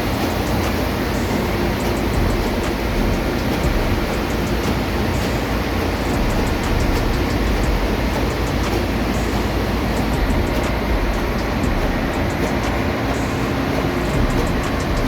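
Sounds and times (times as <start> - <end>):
engine room machinery roar: 0.0 - 15.0.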